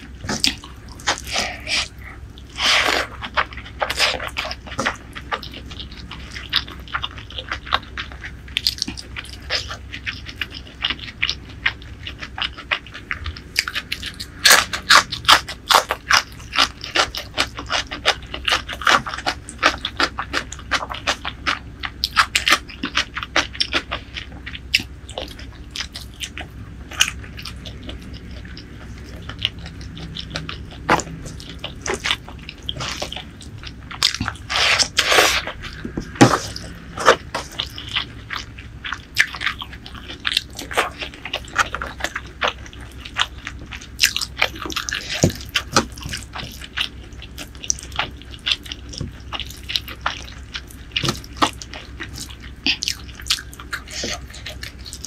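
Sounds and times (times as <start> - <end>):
person chewing food: 0.0 - 55.0.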